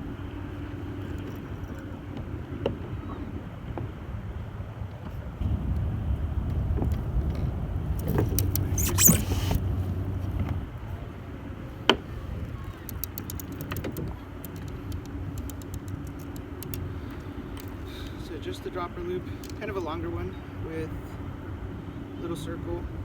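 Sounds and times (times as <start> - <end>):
fishing tackle clicking and rattling: 12.8 - 18.2, 19.4 - 19.6.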